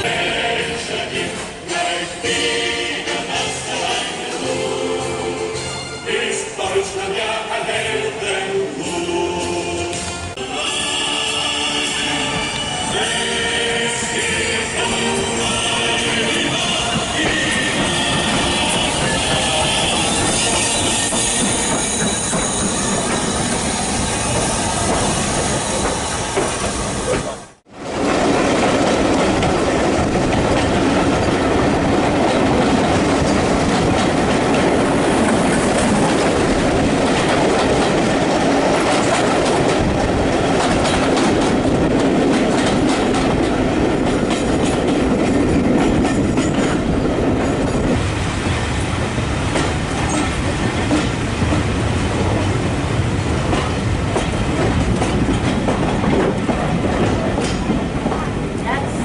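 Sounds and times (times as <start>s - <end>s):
train rumble: 0.0s - 59.0s
train wheels clicking on rails: 14.8s - 59.0s
wheel squeal: 19.8s - 27.2s.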